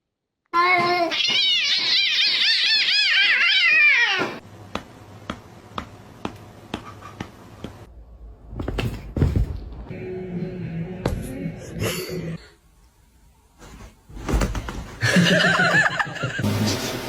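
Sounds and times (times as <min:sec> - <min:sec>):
pet high-pitched cries: 0:00.8 - 0:04.4.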